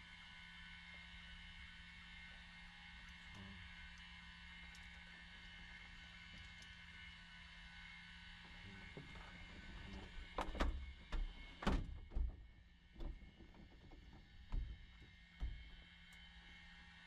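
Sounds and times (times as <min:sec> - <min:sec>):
equipment knocks and clunks: 0:10.4 - 0:15.8.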